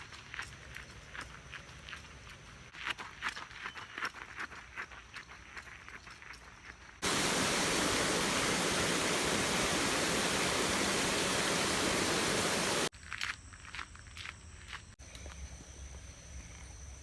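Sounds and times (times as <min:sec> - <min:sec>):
creek water rushing: 0:07.0 - 0:12.9.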